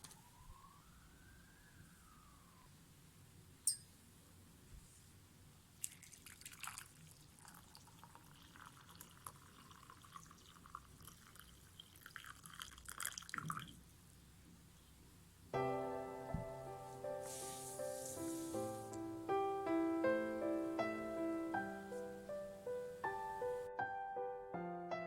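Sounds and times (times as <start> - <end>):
water dripping and trickling: 5.8 - 13.8.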